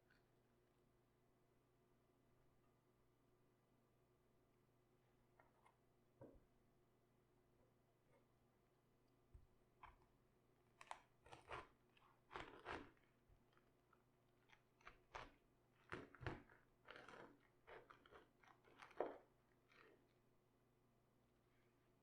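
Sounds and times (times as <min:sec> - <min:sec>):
raw cabbage crunching: 0:10.8 - 0:20.0.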